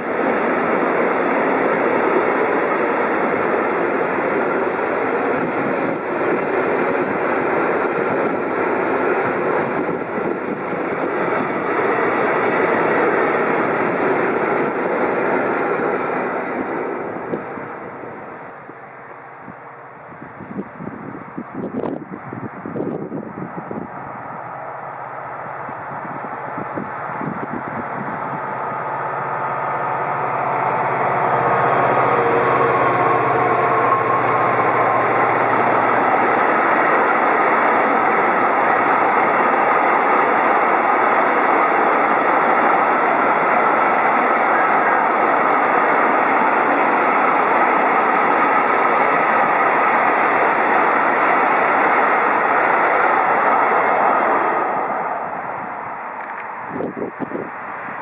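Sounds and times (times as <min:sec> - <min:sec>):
diesel locomotive accelerating: 0:00.0 - 0:58.0
wagons wheel-on-rail noise: 0:26.1 - 0:58.0.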